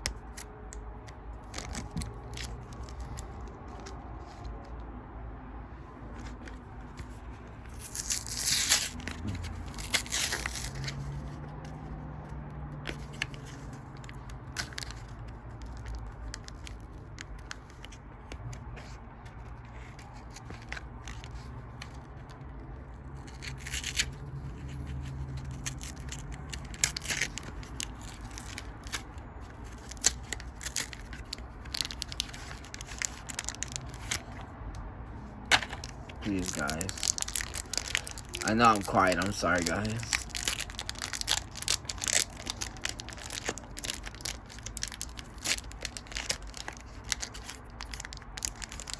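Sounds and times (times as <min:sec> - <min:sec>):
foil wrappers crinkling and tearing: 0:01.4 - 0:04.0, 0:07.7 - 0:11.2, 0:12.9 - 0:18.4, 0:23.2 - 0:34.4, 0:35.5 - 0:48.9.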